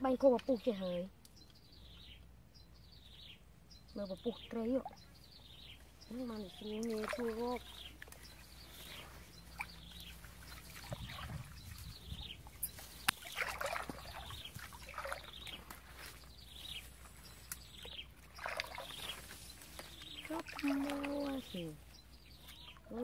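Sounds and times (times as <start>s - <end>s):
bird chirping: 0.1s - 23.0s
leaves brushing: 6.1s - 17.7s, 18.4s - 22.6s
footsteps on wet path: 6.9s - 17.5s.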